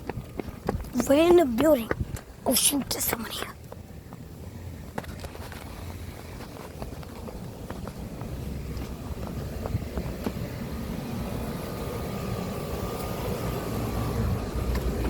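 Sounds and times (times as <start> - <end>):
light footsteps: 0.0 - 10.6.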